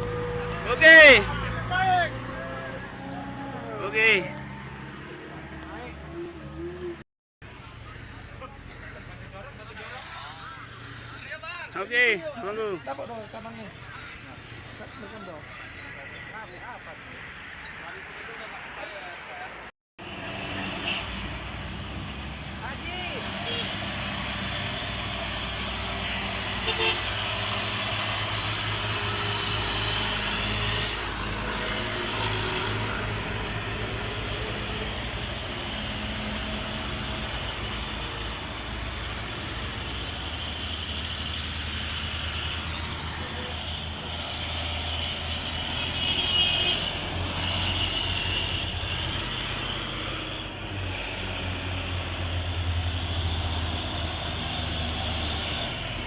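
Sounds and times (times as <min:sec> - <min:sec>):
diesel engine rumbling: 0:00.0 - 0:56.0.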